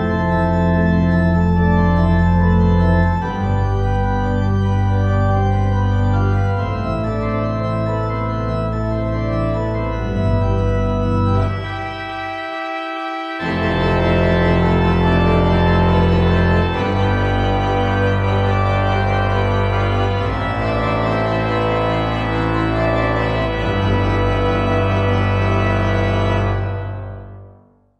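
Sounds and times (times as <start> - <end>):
organ playing sustained chords: 0.0 - 27.7.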